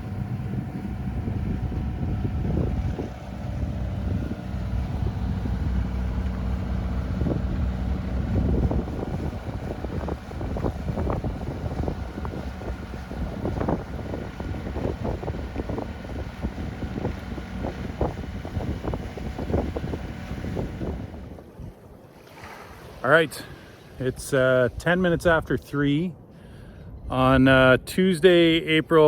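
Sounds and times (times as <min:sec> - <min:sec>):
boat engine droning: 0:00.0 - 0:27.7
wind buffeting microphone: 0:00.0 - 0:29.0.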